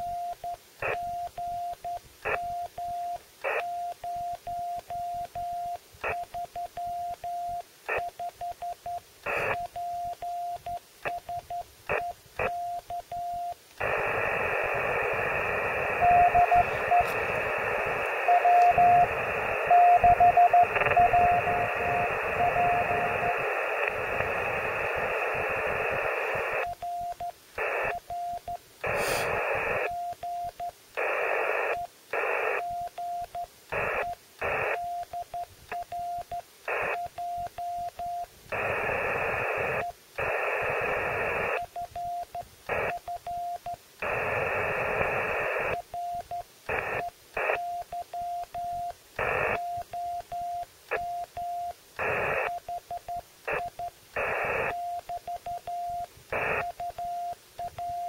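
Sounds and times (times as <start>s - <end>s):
radio static: 9.3s - 9.6s, 13.8s - 26.7s, 27.6s - 28.0s, 28.8s - 29.9s, 31.0s - 32.6s, 33.7s - 34.8s, 36.7s - 37.1s, 38.5s - 41.8s, 42.6s - 43.1s, 44.0s - 45.8s, 46.6s - 47.6s, 48.8s - 50.2s, 51.7s - 52.8s, 53.5s - 56.9s
morse code beeping: 16.0s - 23.4s.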